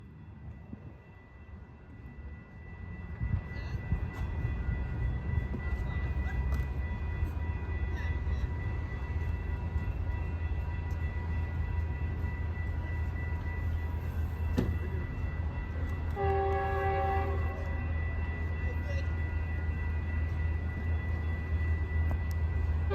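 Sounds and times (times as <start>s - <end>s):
train rumbling: 0.0s - 22.9s
train horn: 16.1s - 18.0s.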